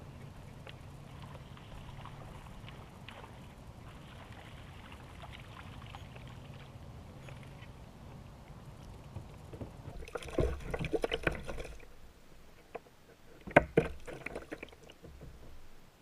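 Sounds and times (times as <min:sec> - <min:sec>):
rattling knocks on kayak: 0:13.4 - 0:15.7.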